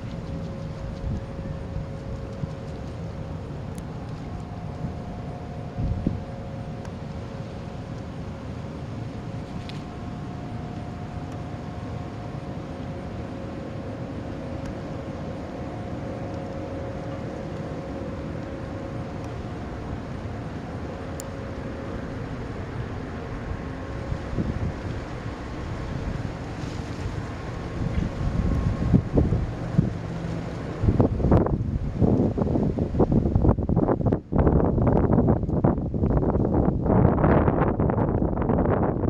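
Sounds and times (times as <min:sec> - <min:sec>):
low rumble: 0:00.0 - 0:39.0
machine hum: 0:00.0 - 0:39.0.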